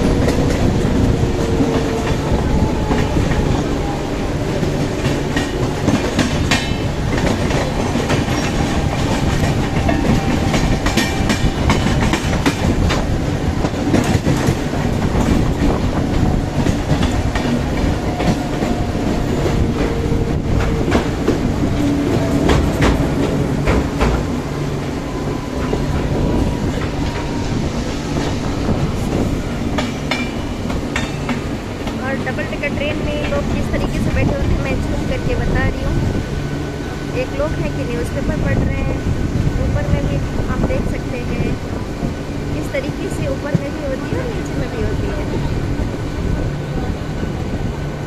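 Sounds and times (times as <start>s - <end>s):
train wheels rumbling on rail: 0.0s - 48.0s
clacks over rail joints: 4.6s - 24.4s.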